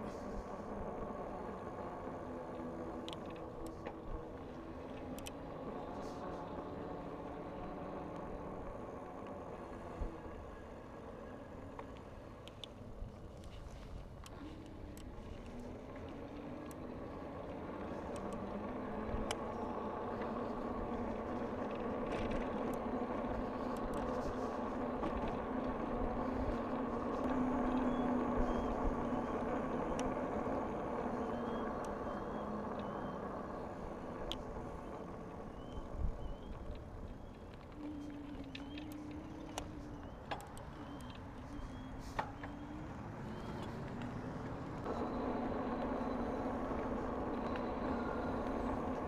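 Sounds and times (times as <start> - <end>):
faint bird chirps: 35.4 - 43.8
vehicle engine passing by: 37.9 - 49.0.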